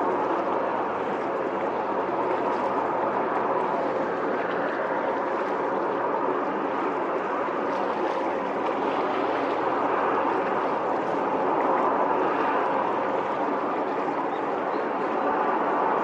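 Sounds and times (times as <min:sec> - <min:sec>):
strong wind rushing: 0:00.0 - 0:16.0.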